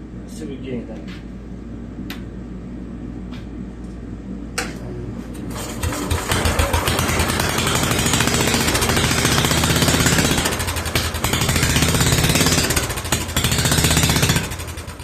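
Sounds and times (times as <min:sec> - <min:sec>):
small gas engine running fast: 0:05.5 - 0:15.0.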